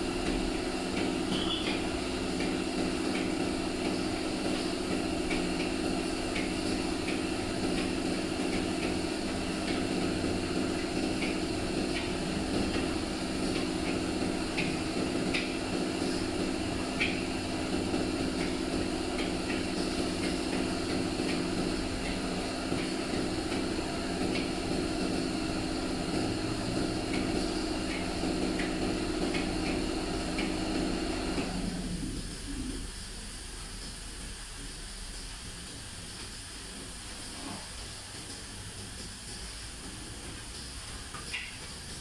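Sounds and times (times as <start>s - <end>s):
low mechanical hum: 0.0s - 42.0s.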